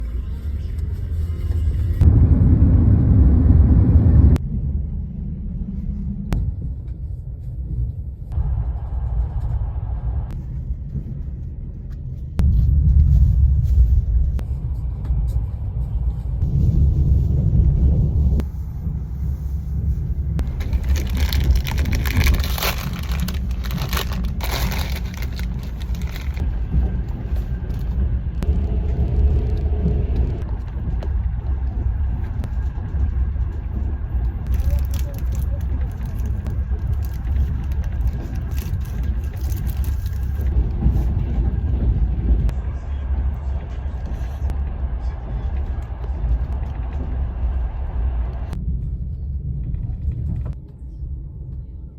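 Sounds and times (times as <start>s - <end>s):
moving train rumble: 0.0s - 51.9s.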